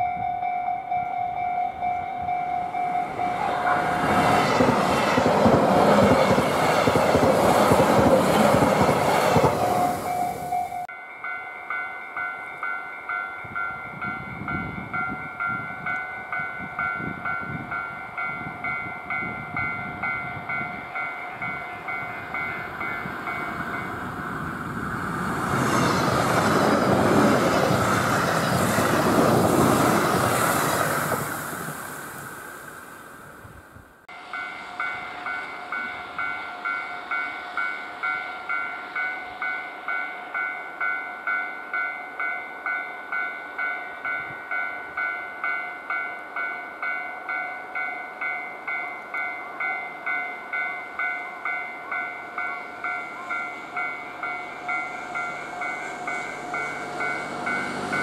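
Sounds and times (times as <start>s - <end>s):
level crossing warning bell: 0.0s - 31.2s, 34.1s - 58.0s
electric train running: 2.2s - 10.9s, 19.1s - 33.0s, 50.8s - 58.0s.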